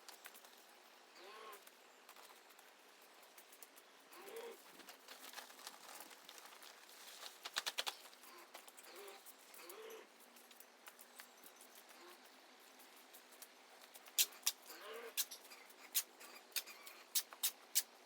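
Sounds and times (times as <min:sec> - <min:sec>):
dove cooing: 0:14.7 - 0:16.9.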